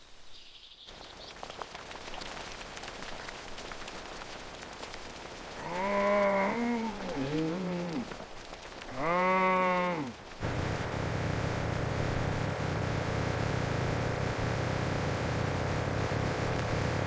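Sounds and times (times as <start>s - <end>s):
faint rain: 0.0s - 17.0s
steady hiss: 0.0s - 17.0s
sheep bleating: 5.6s - 8.2s, 8.9s - 10.2s.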